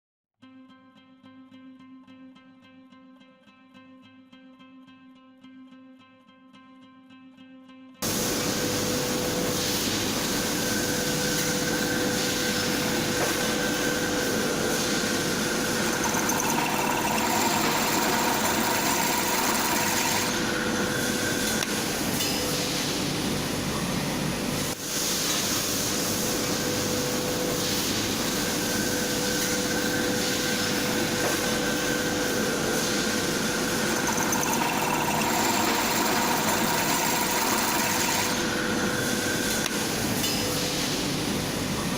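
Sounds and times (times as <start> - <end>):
drill press whirring: 10.1 - 22.3, 28.1 - 40.2.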